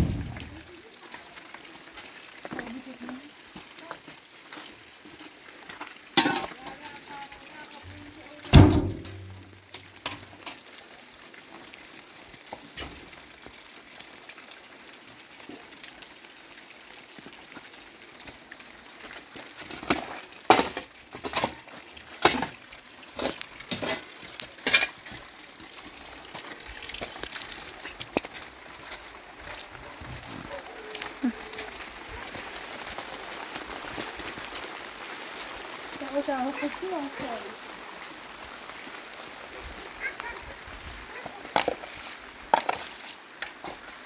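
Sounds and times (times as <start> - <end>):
sharp knocks and clatters: 0.0 - 0.6
rain hissing: 0.0 - 1.0, 23.1 - 44.0.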